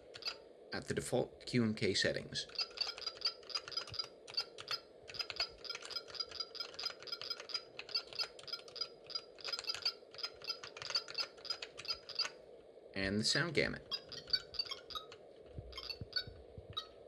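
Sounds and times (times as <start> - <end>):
keyboard keys clicking: 2.5 - 12.4.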